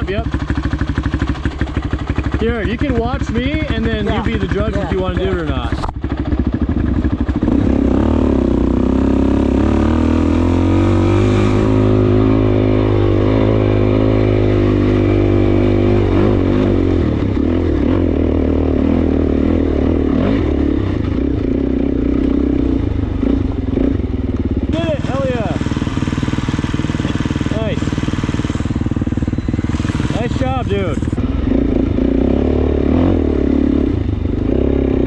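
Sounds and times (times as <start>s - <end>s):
motorcycle engine pulling under load: 23.0s - 31.6s.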